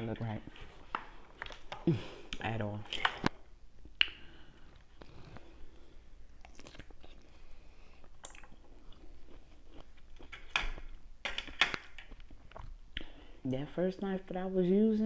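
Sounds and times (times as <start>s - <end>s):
wet chewing clicks and smacks: 6.4s - 7.3s, 8.0s - 13.1s.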